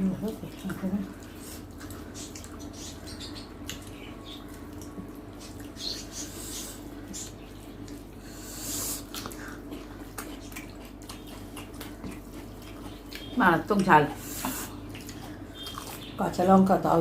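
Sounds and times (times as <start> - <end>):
people chewing: 0.0 - 17.0
steady low hum: 0.0 - 17.0
hissing breaths: 8.1 - 9.7.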